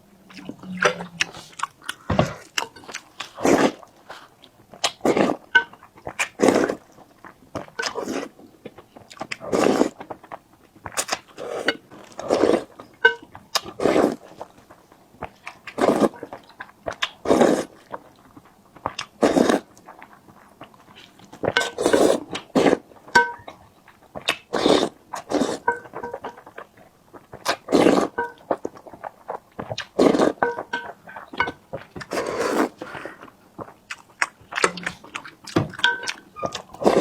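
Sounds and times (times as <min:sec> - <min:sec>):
wet chewing and mouth noises: 0:00.0 - 0:37.0.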